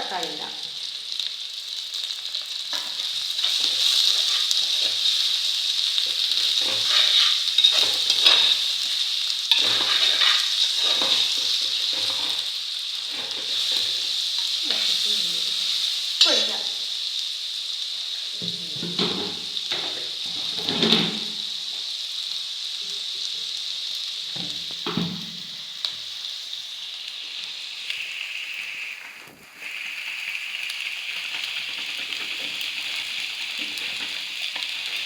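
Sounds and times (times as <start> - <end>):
onions sizzling in a pan: 0.0 - 35.0
spoon stirring and knocking pan: 2.7 - 14.5, 18.4 - 21.4, 24.3 - 25.5, 31.8 - 35.0.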